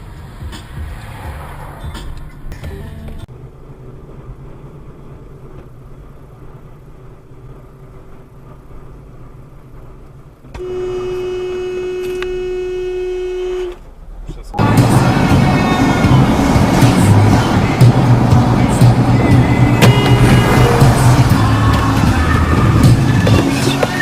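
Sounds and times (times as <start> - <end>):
vehicle driving rumble: 0.0 - 24.0
vehicle horn long blast: 10.6 - 13.8, 19.7 - 21.2.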